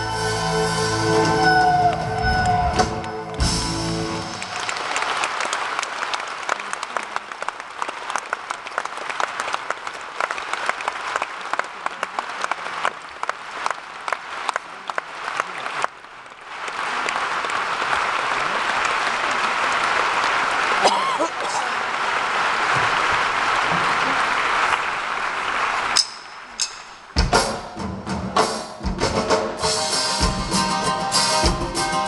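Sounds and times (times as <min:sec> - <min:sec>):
audience applauding: 0:01.1 - 0:26.6.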